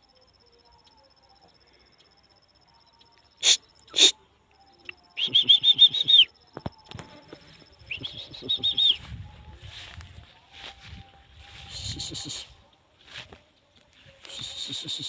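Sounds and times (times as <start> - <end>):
donkey braying: 3.4 - 4.2.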